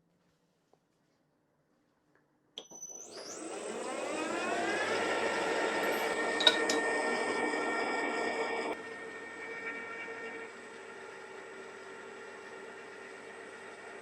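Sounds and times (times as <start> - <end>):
milling spindle whining: 2.8 - 14.0.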